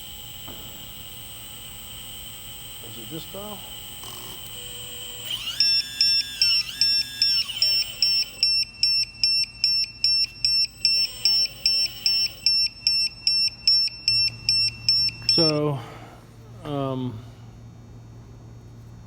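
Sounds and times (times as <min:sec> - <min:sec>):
hydraulic pump whining: 0:00.0 - 0:16.1
electronic beeping: 0:02.1 - 0:15.6.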